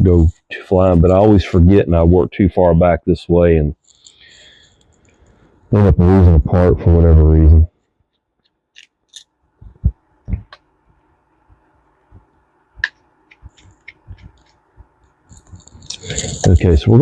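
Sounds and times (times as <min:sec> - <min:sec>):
small metal parts clicking: 0:08.7 - 0:09.3.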